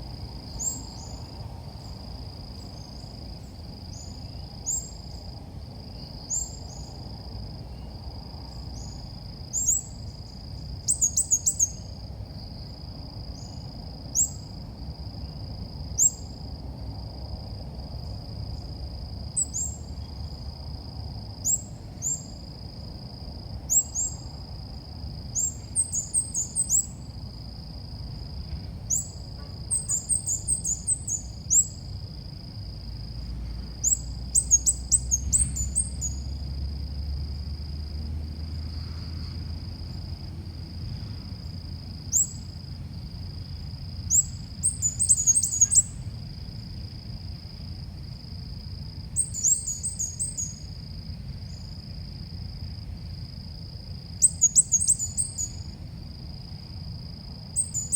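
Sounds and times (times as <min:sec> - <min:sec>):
bird chirping: 0:29.7 - 0:31.8, 0:33.8 - 0:36.2, 0:44.1 - 0:46.0.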